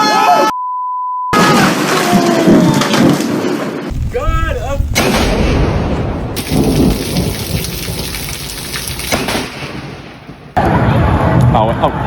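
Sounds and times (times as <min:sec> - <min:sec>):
heavy rain: 0:02.5 - 0:10.6
thunder rumbling: 0:03.9 - 0:11.6.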